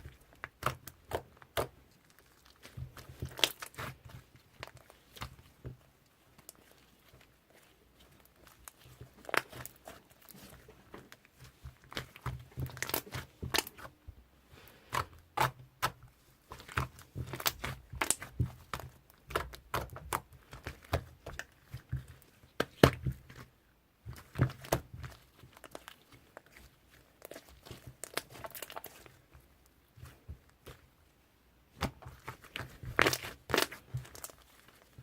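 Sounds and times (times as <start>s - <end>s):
slime crackling and popping: 11.4s - 13.9s, 14.9s - 23.1s, 24.1s - 29.2s, 31.7s - 35.0s.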